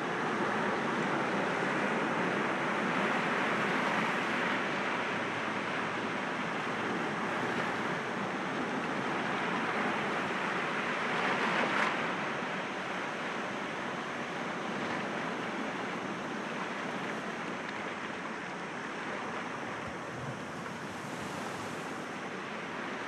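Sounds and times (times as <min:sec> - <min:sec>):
sea waves breaking on rocks: 0:19.4 - 0:23.0.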